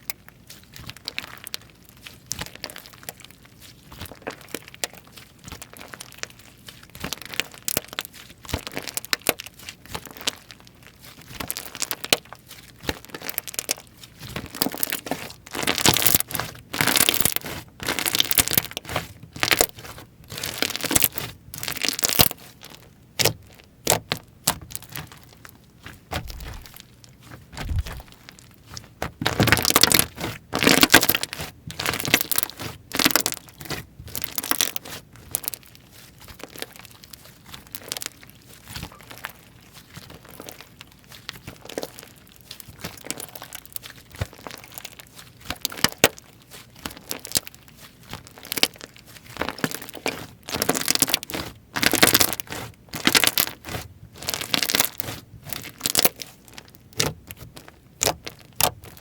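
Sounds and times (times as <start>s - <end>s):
slime crackling and popping: 0.0s - 59.0s.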